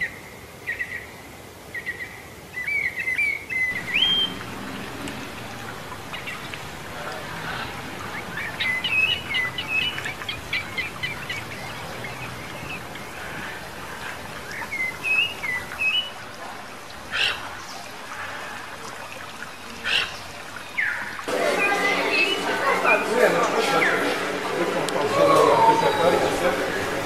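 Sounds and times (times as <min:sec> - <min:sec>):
birds chirping: 0:00.0 - 0:27.0
steady background hiss: 0:00.0 - 0:27.0
harsh bird calls: 0:01.8 - 0:16.2.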